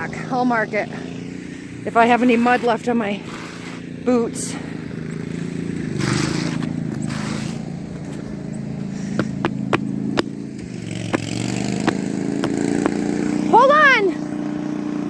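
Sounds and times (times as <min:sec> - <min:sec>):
lawn mower engine running: 0:04.8 - 0:15.0.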